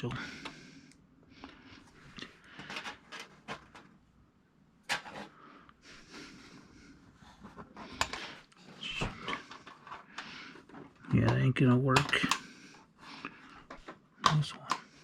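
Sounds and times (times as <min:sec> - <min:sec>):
plastic caps clicking: 0:11.0 - 0:12.5.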